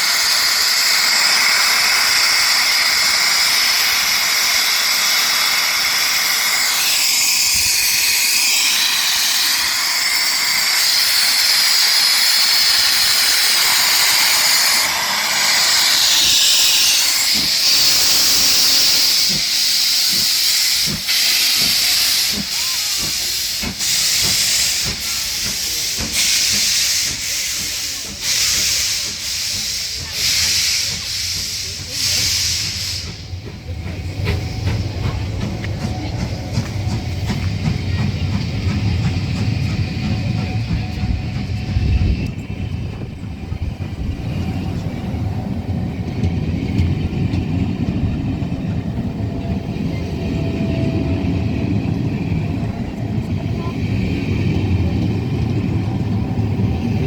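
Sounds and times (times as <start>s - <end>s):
steam locomotive hissing: 0.0s - 57.0s
train rumbling past: 0.0s - 57.0s.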